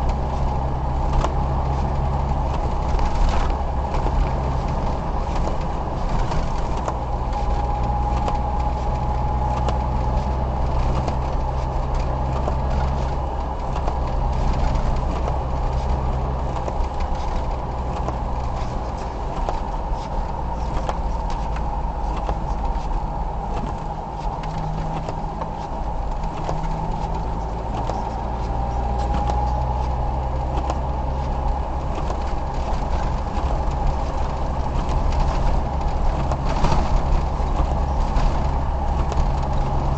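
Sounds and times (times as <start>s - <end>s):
car engine hum: 0.0s - 39.9s
road and tyre noise: 0.0s - 39.9s.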